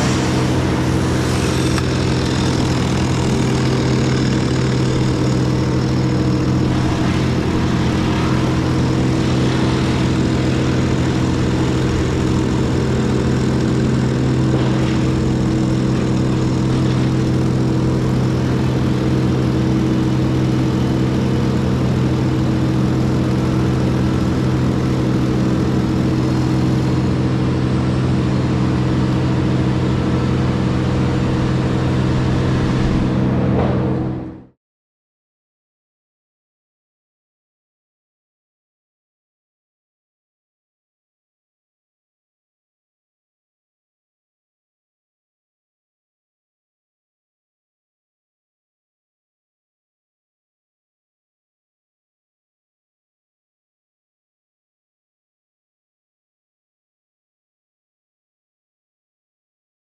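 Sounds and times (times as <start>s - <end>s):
heavy equipment engine running: 0.0s - 34.6s.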